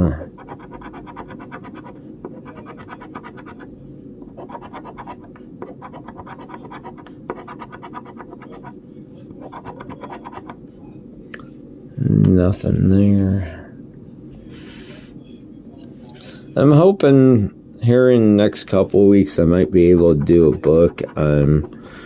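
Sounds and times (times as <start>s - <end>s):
scratching lottery ticket: 0.4s - 3.7s, 4.4s - 8.8s, 9.4s - 10.6s, 19.8s - 21.7s.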